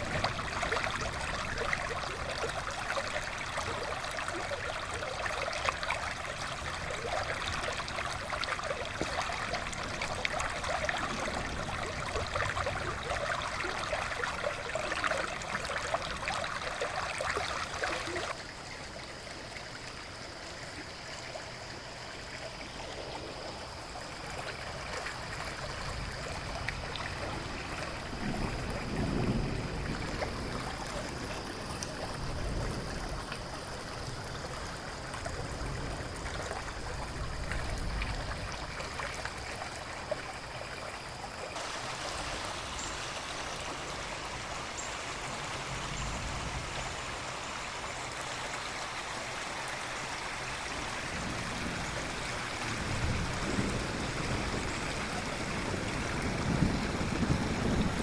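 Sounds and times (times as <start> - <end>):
rain: 0.0 - 58.0
river flowing: 0.0 - 58.0
distant thunder rumble: 6.1 - 18.4, 22.9 - 39.3, 41.6 - 47.4, 50.7 - 58.0.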